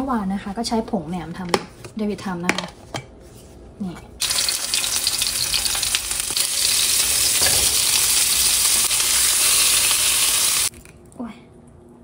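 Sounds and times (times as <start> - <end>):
sausage frying in oil: 4.2 - 10.7.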